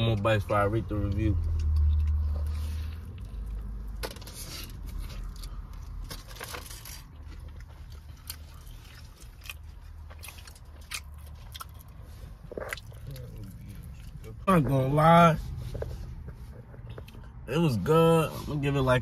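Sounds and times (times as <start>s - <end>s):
chewing and biting food: 1.4s - 4.0s, 4.6s - 14.4s.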